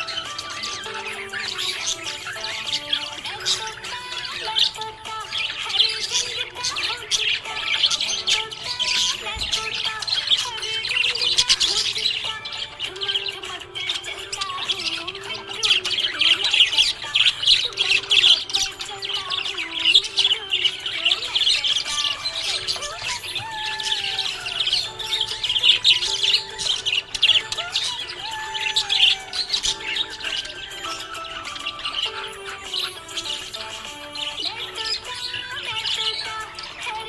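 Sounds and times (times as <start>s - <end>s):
budgerigar chirping: 0.0s - 37.0s.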